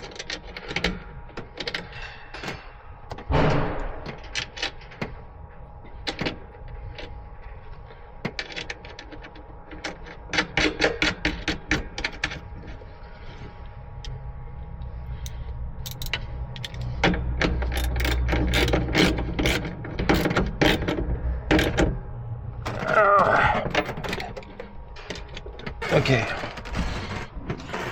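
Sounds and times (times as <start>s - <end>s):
low rumble: 12.4s - 20.1s
hand tools ratcheting: 15.8s - 16.9s, 17.6s - 20.9s.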